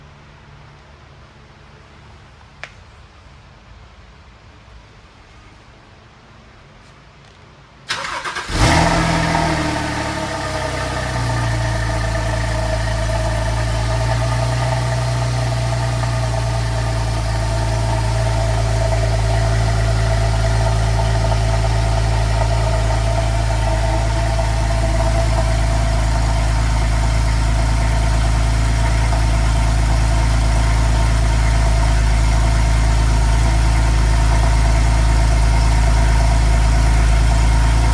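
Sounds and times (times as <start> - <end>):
car engine starting and idling: 7.9 - 37.9.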